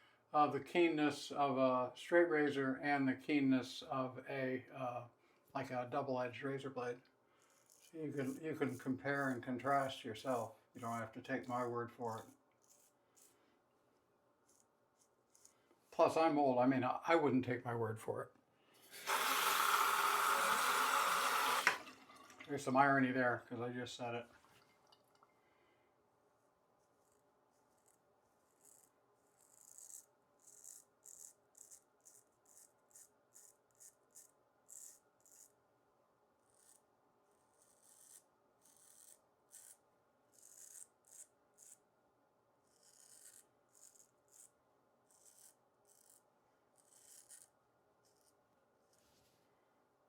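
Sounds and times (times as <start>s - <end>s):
razor scraping stubble: 7.4s - 13.4s, 14.4s - 15.7s, 26.8s - 35.6s, 36.4s - 41.8s, 42.6s - 49.2s.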